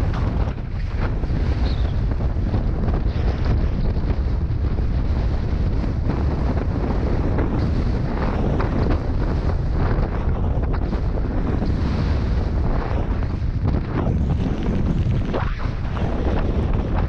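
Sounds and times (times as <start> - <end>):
wind buffeting microphone: 0.0 - 17.0
short crackles: 12.6 - 17.0.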